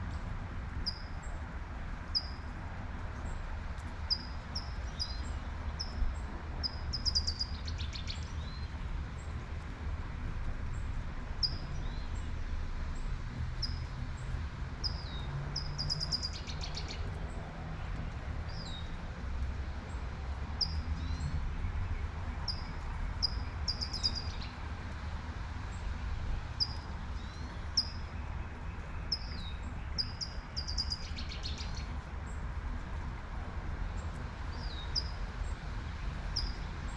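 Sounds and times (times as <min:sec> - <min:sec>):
distant traffic rumble: 0:00.0 - 0:36.9
birds singing: 0:21.9 - 0:24.6, 0:26.6 - 0:32.0.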